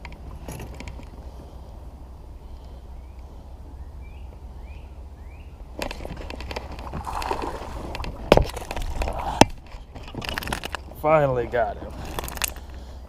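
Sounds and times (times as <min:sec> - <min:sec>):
bird chirping: 0:03.0 - 0:05.7
fish splashing and scuffling: 0:05.8 - 0:10.9.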